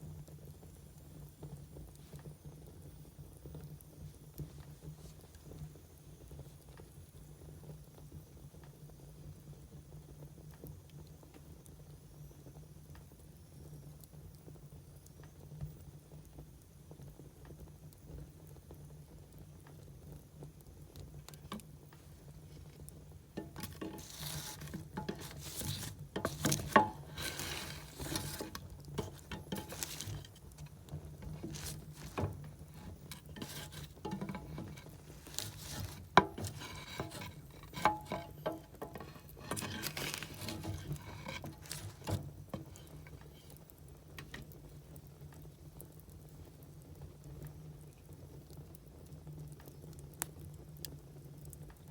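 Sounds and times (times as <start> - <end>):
firewood crackling and hissing: 0.0 - 51.9.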